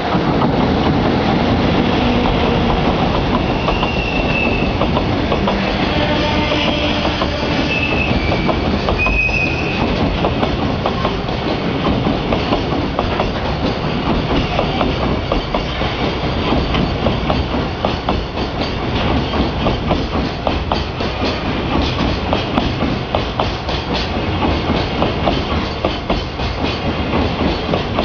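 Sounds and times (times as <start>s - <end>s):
train wheels clattering over rail joints: 0.0s - 28.0s
high wheel squeals: 3.5s - 4.8s, 6.0s - 9.9s.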